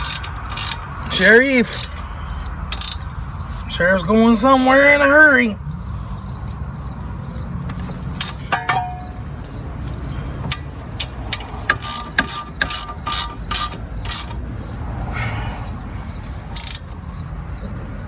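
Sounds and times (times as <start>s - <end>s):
hand ratchet clicking: 0.0s - 3.1s, 10.4s - 14.7s, 16.5s - 16.9s
metallic clink: 8.2s - 9.6s.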